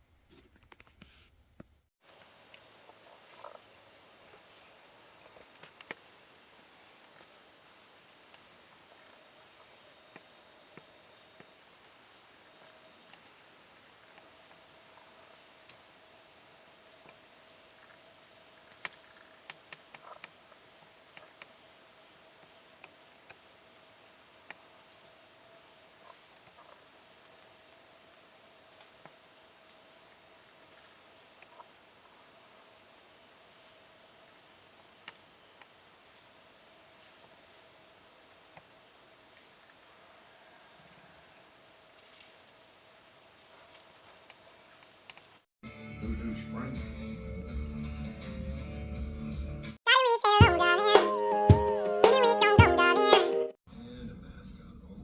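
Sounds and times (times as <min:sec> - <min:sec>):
insects trilling: 0:02.0 - 0:45.5.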